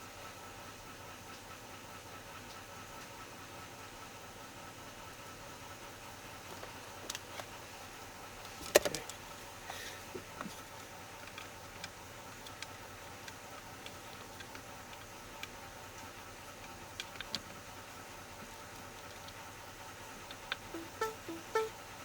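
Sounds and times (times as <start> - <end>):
faint steady hum: 4.9 - 22.0.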